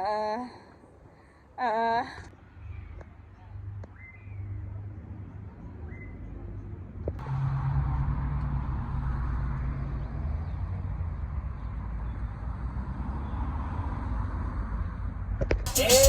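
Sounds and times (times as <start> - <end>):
car engine and road noise: 7.0 - 15.6.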